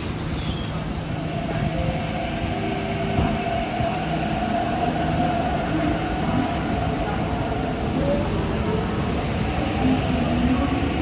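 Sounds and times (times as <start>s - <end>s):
electric train rumble: 0.0s - 11.0s.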